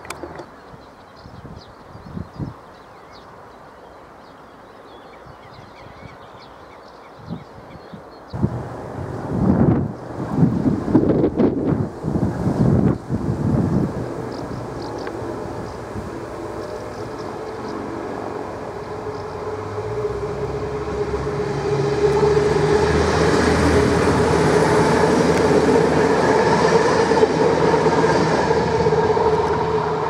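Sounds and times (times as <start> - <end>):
diesel train passing: 8.3 - 30.0
train wheel noise: 8.4 - 30.0.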